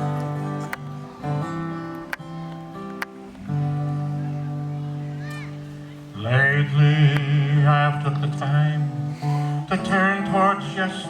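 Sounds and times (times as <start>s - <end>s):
acoustic guitar plucking: 0.0s - 11.0s
male voices singing in harmony: 6.2s - 11.0s.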